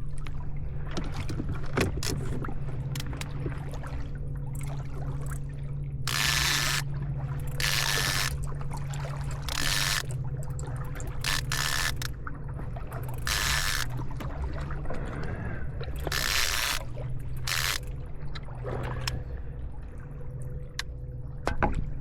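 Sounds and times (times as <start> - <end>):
steady low hum: 0.0 - 22.0
fishing reel buzzing: 6.1 - 8.4, 9.4 - 10.2, 11.1 - 12.1, 13.1 - 14.0, 16.0 - 16.8, 17.4 - 18.0.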